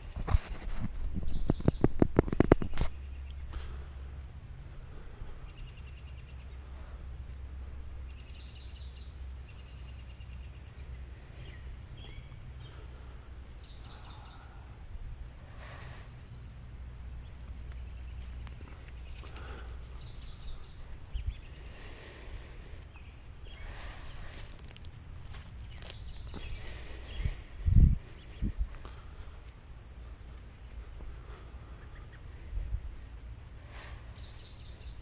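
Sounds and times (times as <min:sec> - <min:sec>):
low rumble on microphone: 0:00.0 - 0:35.0
small birds singing: 0:00.0 - 0:35.0.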